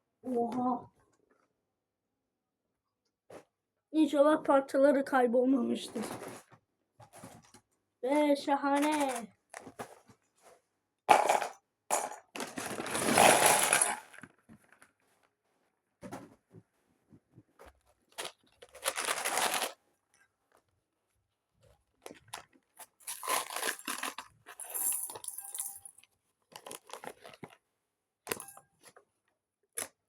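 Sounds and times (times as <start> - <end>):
plastic bags crinkling: 8.7 - 9.8, 11.1 - 15.0, 18.1 - 19.8, 22.0 - 27.6.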